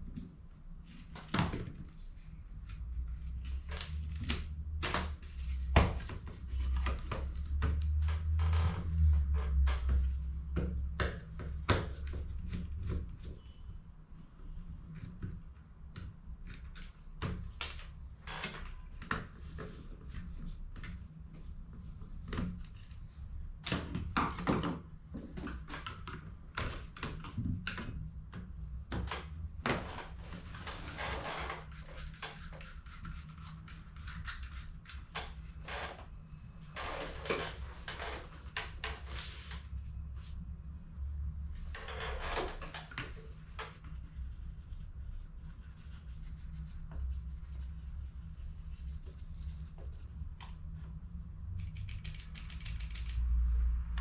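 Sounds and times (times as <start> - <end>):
plastic clicks and rattles: 51.6 - 53.3.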